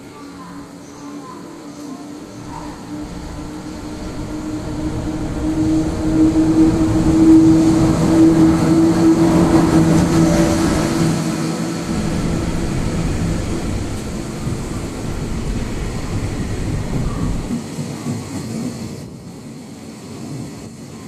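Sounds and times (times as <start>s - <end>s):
freight train rumble: 0.0s - 19.8s
steady low hum: 2.4s - 17.6s.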